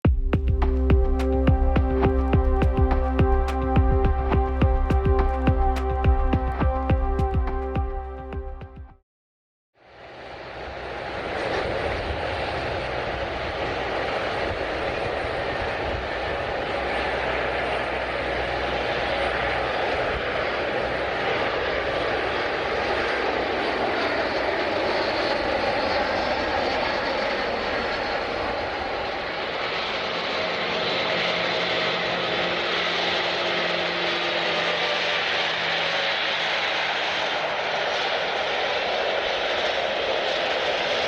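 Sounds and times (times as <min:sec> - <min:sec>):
jet airliner engines running: 0:00.1 - 0:08.8, 0:09.8 - 0:41.0.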